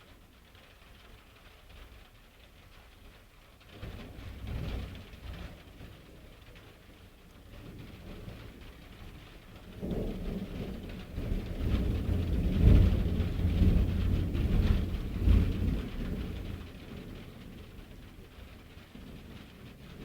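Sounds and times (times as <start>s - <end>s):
steady rain: 0.0s - 20.0s
thunder rumbling: 9.3s - 20.0s.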